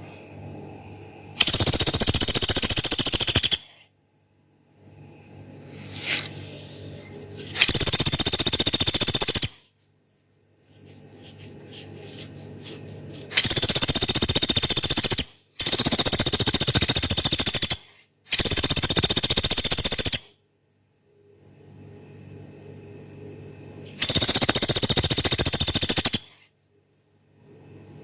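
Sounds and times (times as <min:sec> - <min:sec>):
woodpecker rattling trills: 0:01.4 - 0:03.8, 0:07.6 - 0:09.7, 0:12.9 - 0:20.3, 0:24.0 - 0:26.4.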